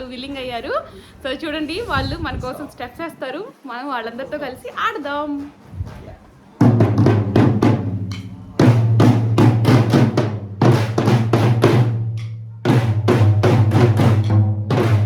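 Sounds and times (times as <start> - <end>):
deep ringing bass drum: 6.6 - 15.0
rapid loud drum strikes: 6.6 - 15.0.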